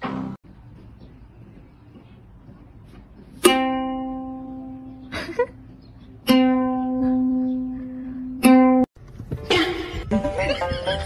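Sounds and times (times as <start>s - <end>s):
plucked string notes: 3.4s - 5.1s, 6.2s - 8.9s.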